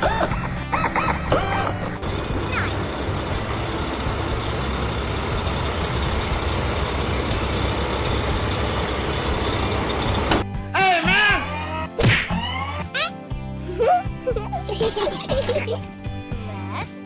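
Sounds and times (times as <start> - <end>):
heavy truck engine running: 0.0 - 10.6.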